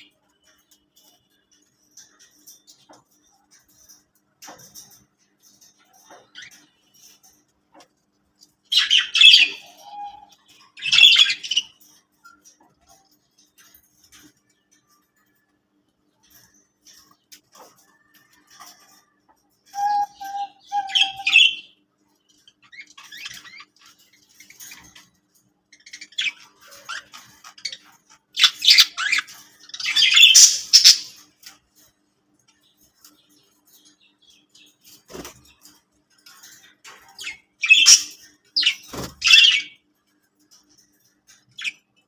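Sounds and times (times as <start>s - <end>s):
budgies chirping and squawking: 4.4s - 14.4s, 19.7s - 31.9s, 32.5s - 39.9s, 41.2s - 42.0s.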